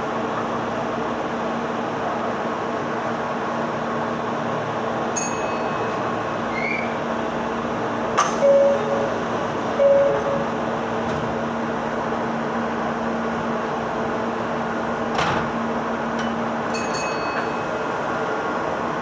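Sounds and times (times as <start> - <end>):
train humming: 0.0 - 19.0
high ringing tone: 5.2 - 6.1, 8.4 - 9.2, 9.8 - 10.5.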